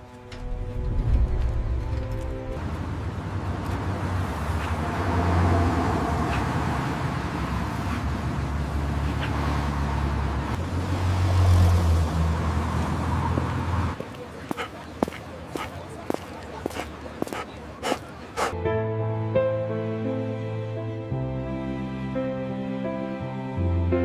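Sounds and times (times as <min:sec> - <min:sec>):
road traffic rumble: 0:00.0 - 0:18.6
vehicles passing: 0:00.1 - 0:18.6.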